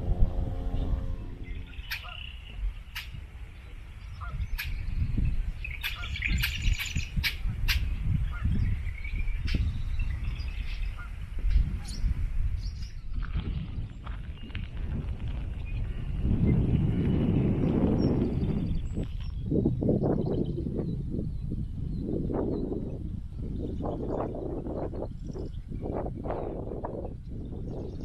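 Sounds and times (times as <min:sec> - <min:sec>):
steady low rumble: 0:00.0 - 0:05.6, 0:07.9 - 0:21.4
marsh birds calling and chirping: 0:00.4 - 0:28.0
sharp clicking bird calls: 0:01.8 - 0:03.2, 0:04.1 - 0:05.0, 0:05.6 - 0:09.7.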